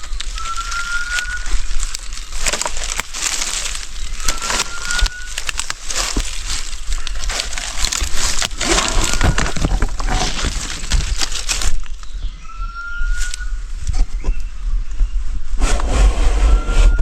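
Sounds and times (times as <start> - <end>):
crackling and rustling: 0.0 - 12.4.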